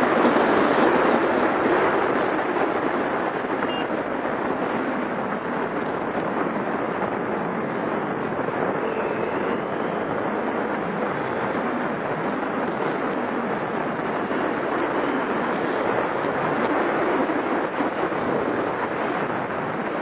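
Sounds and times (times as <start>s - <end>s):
rushing wind: 0.0s - 20.0s
vehicle road noise: 0.0s - 20.0s.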